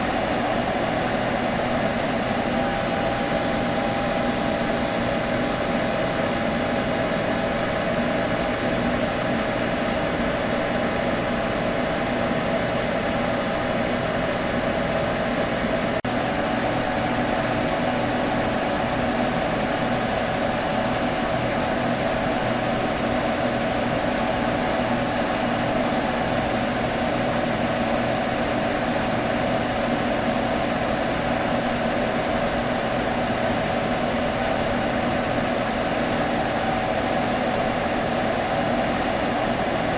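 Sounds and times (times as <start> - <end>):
computer humming: 30.6 - 39.9.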